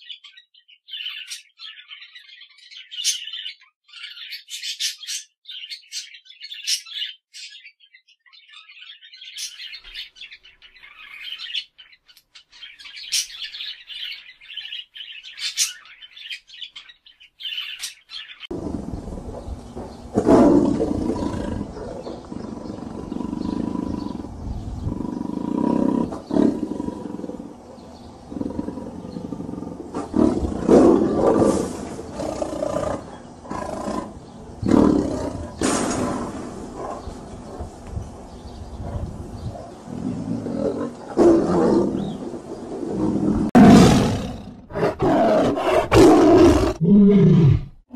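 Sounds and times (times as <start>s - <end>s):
tiger growling and roaring: 18.5s - 47.9s.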